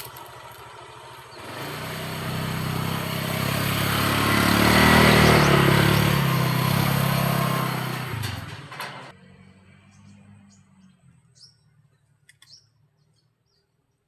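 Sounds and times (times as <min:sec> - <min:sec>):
vehicle driving past: 0:00.0 - 0:11.2.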